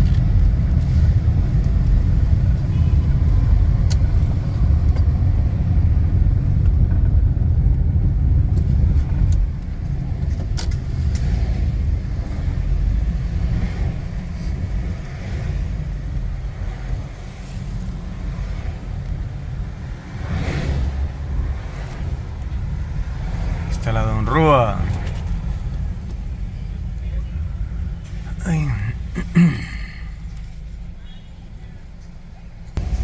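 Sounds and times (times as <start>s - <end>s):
vehicle low rumble: 0.0s - 33.0s
vehicle passing: 10.9s - 26.5s.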